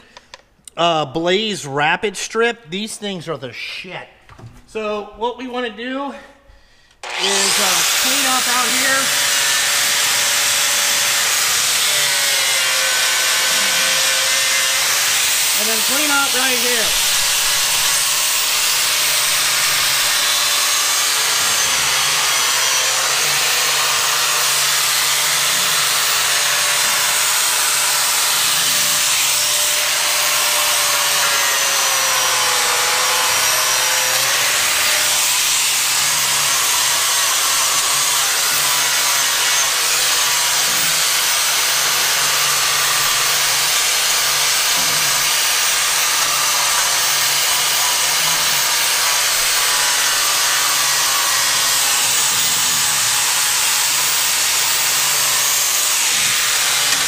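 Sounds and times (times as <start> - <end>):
abrasive disc grinding steel: 7.0 - 57.0.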